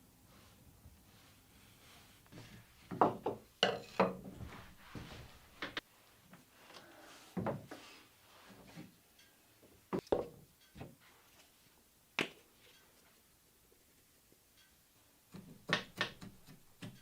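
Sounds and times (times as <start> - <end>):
objects knocking and clattering: 2.9 - 4.7.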